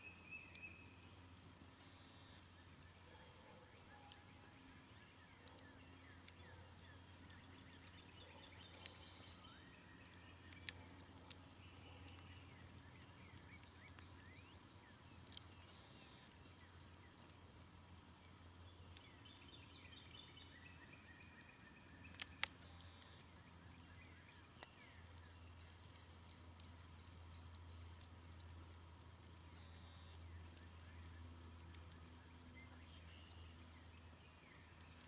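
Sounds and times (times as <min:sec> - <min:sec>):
birds singing and chirping: 0:00.0 - 0:17.7, 0:18.6 - 0:28.0
campfire crackling faintly: 0:00.0 - 0:35.0.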